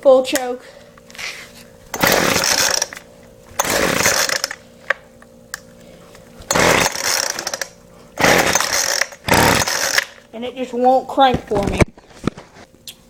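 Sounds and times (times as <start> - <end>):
recoil starter rasping whir: 0.9 - 10.4.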